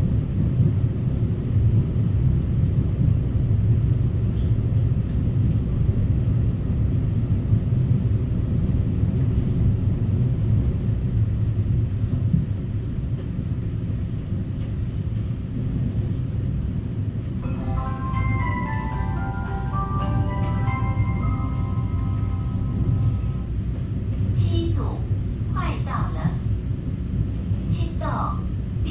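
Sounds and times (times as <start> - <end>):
train announcement: 17.2 - 26.6, 27.6 - 28.9
electronic chime melody: 17.4 - 23.5.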